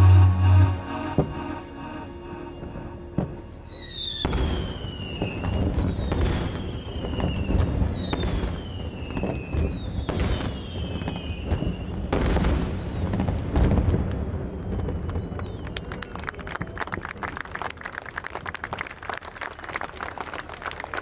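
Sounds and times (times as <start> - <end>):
falling whistles: 0.0 - 12.1, 14.9 - 16.3
low rumble of explosions: 2.6 - 16.7.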